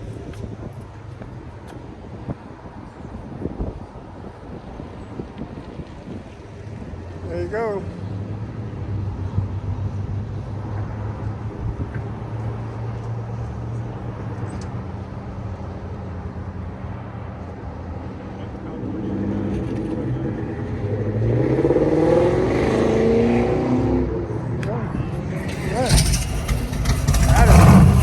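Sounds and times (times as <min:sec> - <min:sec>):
car engine speeding up: 0:25.3 - 0:28.0
car engine idling: 0:25.4 - 0:28.0.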